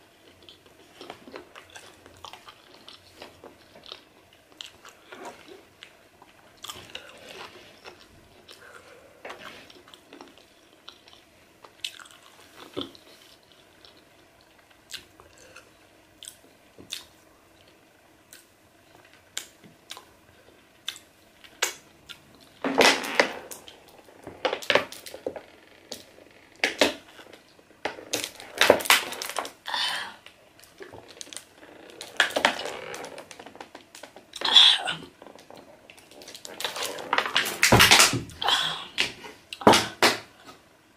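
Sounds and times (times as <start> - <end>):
wet chewing and mouth clicks: 9.6 - 22.6.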